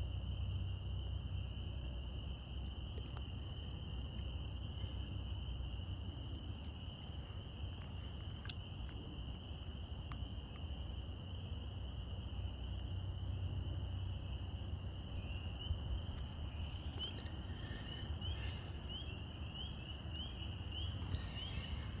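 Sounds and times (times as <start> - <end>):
chorus of frogs calling: 13.8 - 22.0.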